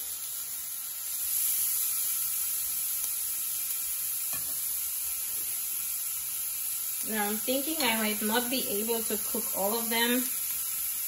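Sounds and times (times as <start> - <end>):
fish sizzling on griddle pan: 0.0 - 11.0.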